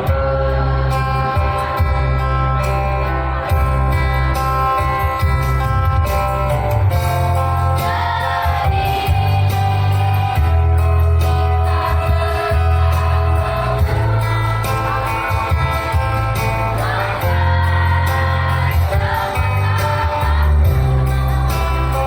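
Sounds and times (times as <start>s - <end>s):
amplified instrumental music: 0.0s - 22.0s
choir singing: 7.1s - 22.0s.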